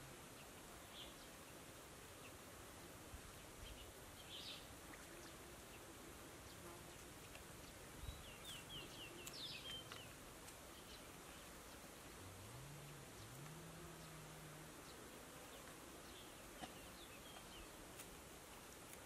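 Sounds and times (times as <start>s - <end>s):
bird chirping: 3.4s - 17.8s.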